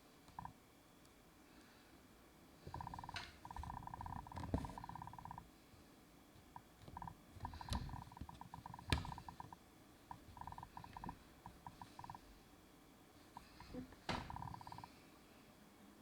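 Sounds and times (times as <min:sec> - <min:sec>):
sharp clicks: 0:06.5 - 0:12.2.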